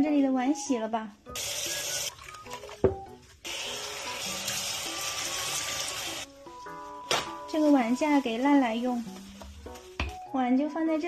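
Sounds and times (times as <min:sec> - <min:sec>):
tap water running into sink: 0:01.4 - 0:06.3.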